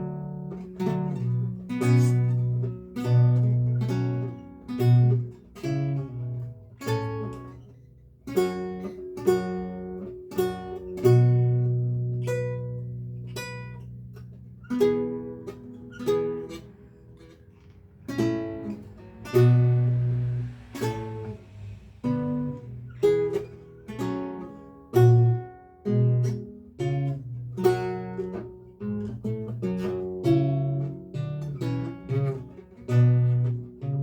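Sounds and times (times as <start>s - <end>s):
solo lute playing: 0.0s - 34.0s.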